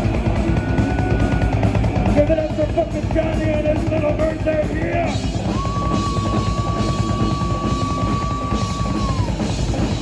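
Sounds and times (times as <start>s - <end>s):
live rock band playing: 0.0s - 10.0s
high held tone sliding down: 5.4s - 9.6s.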